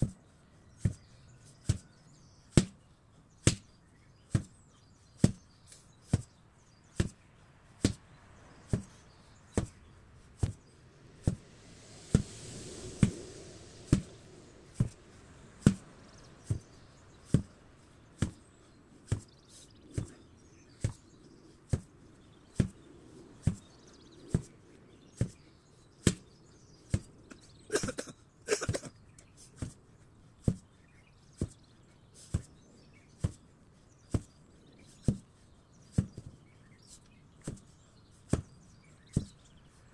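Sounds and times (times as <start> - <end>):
burst of crackling noise: 11.2 - 16.2.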